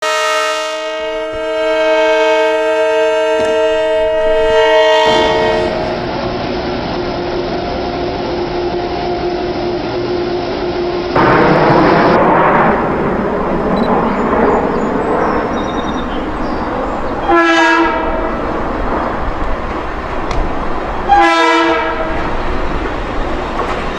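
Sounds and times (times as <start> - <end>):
train horn chord: 0.0 - 6.1, 16.0 - 18.5, 20.2 - 22.3
train wheels on rails: 1.1 - 8.7, 9.4 - 23.9
faint whine: 11.2 - 17.3.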